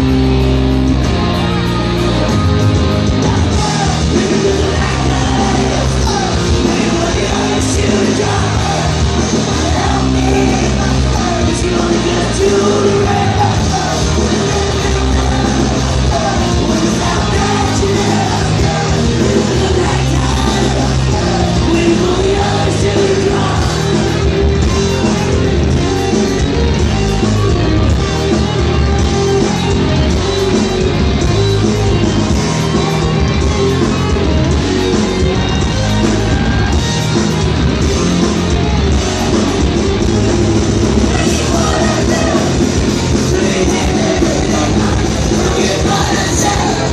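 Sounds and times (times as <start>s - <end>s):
punk rock band playing: 0.0s - 46.9s
shouted vocals: 1.2s - 30.4s, 41.0s - 46.9s.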